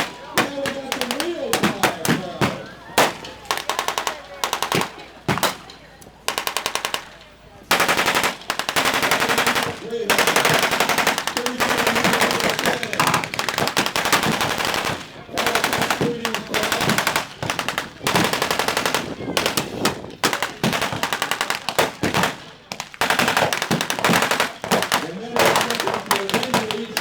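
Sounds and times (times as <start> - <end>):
machine gun bursts: 6.3 - 27.0.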